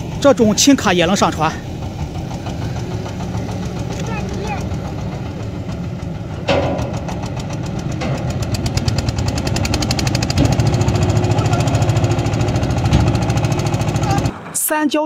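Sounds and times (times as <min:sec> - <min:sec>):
engine clattering: 0:00.0 - 0:15.0
sharp clank: 0:06.3 - 0:11.4.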